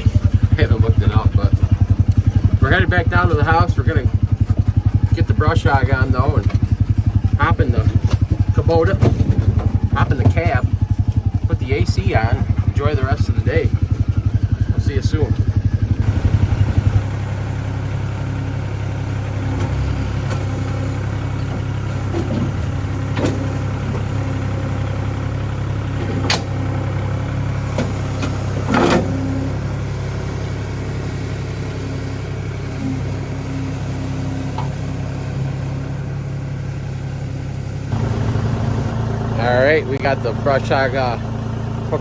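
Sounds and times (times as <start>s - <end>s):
tractor diesel engine idling: 0.0s - 42.0s.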